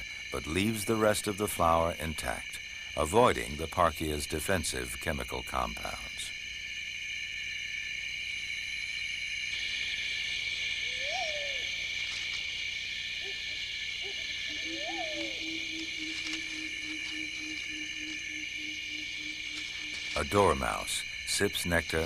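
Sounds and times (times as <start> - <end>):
insect chorus: 0.0 - 22.0
hooting calls: 10.8 - 22.0.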